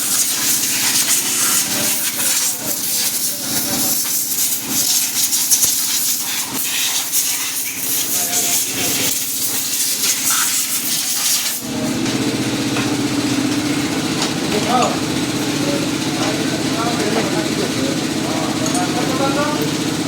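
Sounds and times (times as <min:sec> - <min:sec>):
loud hissing spray: 0:00.0 - 0:11.7
small engine running: 0:00.0 - 0:20.0.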